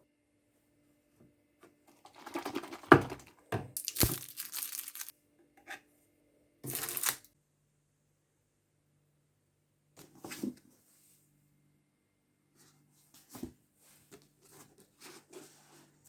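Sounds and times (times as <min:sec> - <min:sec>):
rustling and crinkling handling noise: 0:01.9 - 0:05.1, 0:06.7 - 0:07.3.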